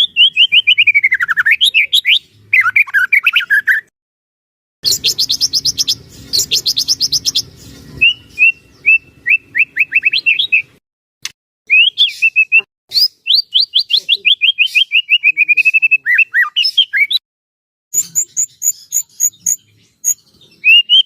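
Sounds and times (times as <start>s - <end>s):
songbird singing trills and whistles: 0.0s - 3.9s, 4.8s - 10.8s, 11.7s - 17.2s, 17.9s - 21.0s.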